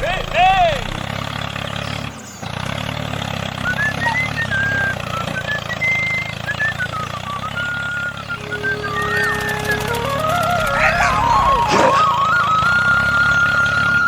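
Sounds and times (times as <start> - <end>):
small engine running: 0.0 - 14.0
high whistled melody: 3.6 - 14.0.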